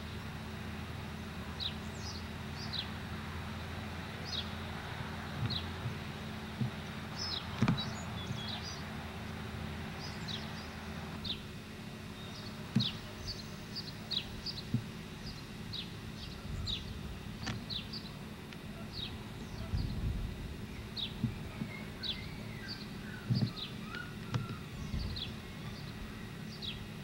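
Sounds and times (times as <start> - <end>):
birds chirping: 0.0 - 27.0
low steady hum: 0.0 - 27.0
sharp thumps: 5.3 - 8.4.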